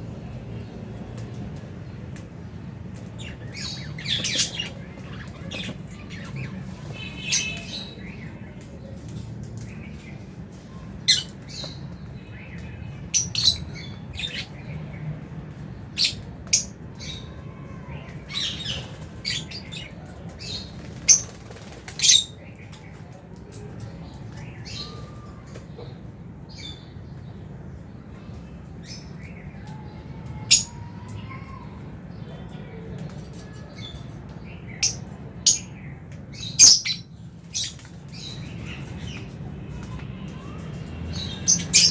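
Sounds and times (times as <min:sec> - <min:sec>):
low background hum: 0:00.0 - 0:41.9
lovebirds squawking and chirping: 0:02.9 - 0:08.4, 0:12.6 - 0:14.6, 0:15.9 - 0:22.7, 0:36.4 - 0:41.9.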